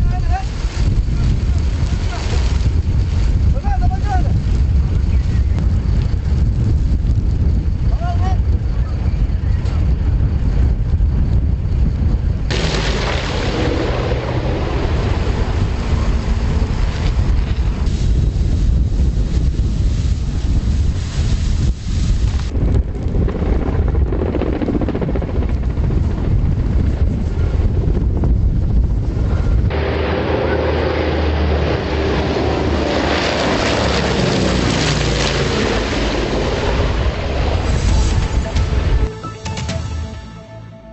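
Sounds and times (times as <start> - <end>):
wind buffeting microphone: 0.0 - 39.1
aircraft engine drone: 8.4 - 40.9.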